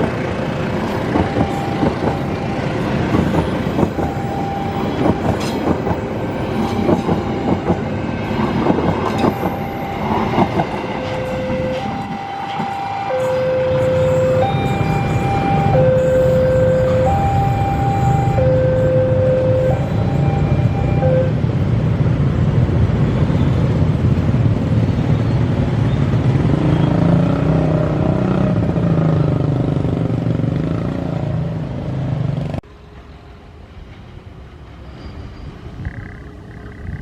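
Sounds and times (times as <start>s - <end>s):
diesel train passing: 0.0s - 37.0s
two-note train horn: 9.4s - 21.4s.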